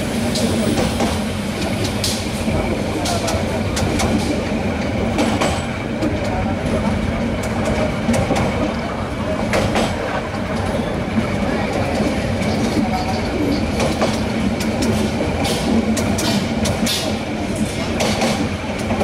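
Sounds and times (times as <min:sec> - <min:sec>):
train rumbling on track: 0:00.0 - 0:19.0
wheels clicking over rail joints: 0:07.4 - 0:19.0.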